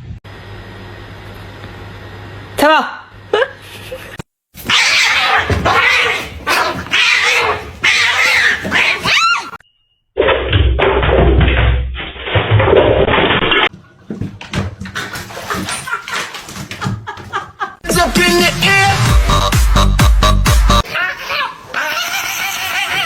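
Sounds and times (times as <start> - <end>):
cat meowing: 6.9 - 9.6.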